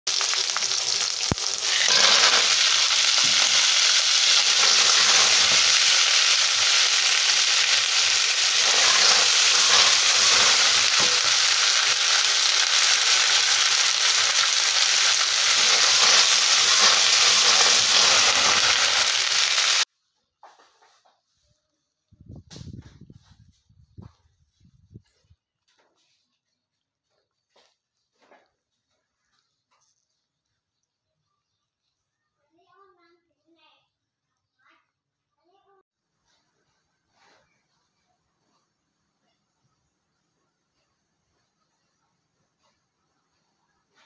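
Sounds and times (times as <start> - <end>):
food sizzling in hot oil: 0.0 - 19.9.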